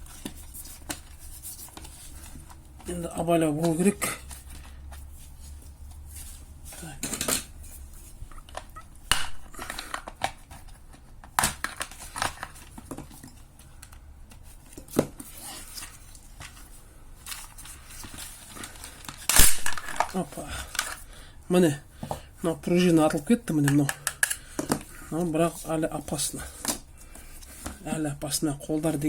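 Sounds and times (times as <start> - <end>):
spring snapping out: 19.3 - 20.1.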